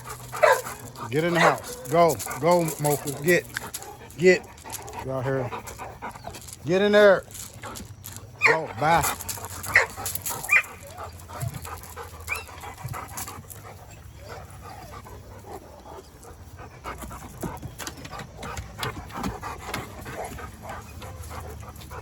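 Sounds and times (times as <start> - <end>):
dogs moving about: 0.0 - 22.0
dogs panting: 0.0 - 22.0
dog whining: 8.4 - 8.8, 9.6 - 12.7, 13.9 - 15.2.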